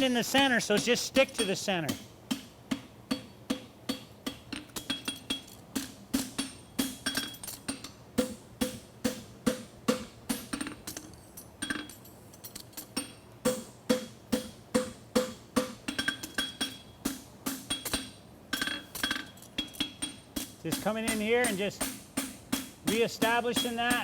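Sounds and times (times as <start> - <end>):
hammer striking shoe on anvil: 0.4 - 11.9, 13.0 - 24.0.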